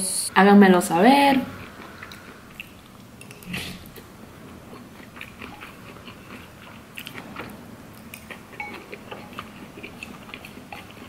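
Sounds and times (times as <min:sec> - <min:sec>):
chewing noodles and rice cakes: 0:01.5 - 0:11.0.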